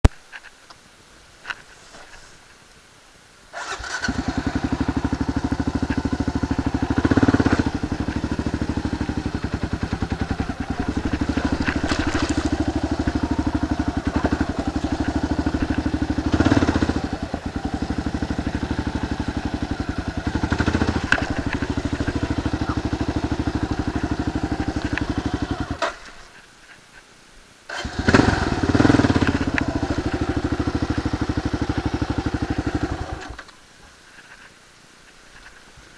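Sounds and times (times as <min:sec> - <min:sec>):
motorcycle engine running: 0:03.6 - 0:25.9, 0:27.7 - 0:33.4.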